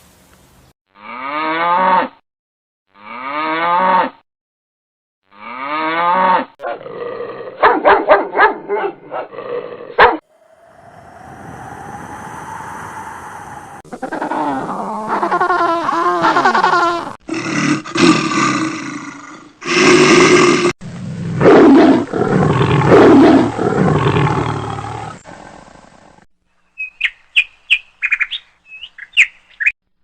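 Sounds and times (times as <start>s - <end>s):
rising hiss: 10.2s - 14.9s.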